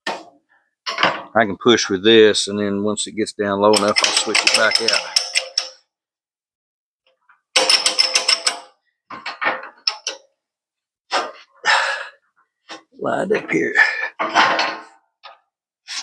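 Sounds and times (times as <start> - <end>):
metal-on-metal rapid clicking: 3.7 - 5.8, 7.6 - 8.7.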